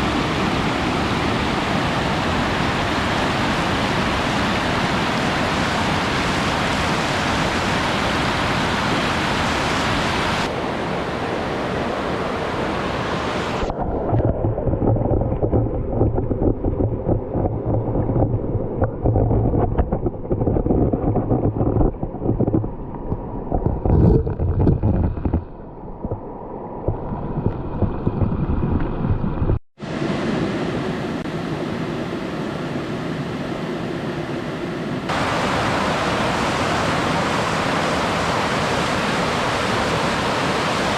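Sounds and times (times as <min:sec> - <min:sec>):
waterfall rushing: 0:00.0 - 0:13.7, 0:35.1 - 0:40.9.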